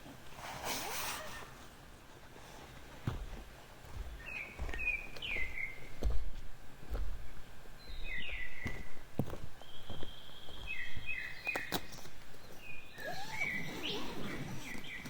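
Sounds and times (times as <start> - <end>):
small bird chirping: 9.6 - 15.0.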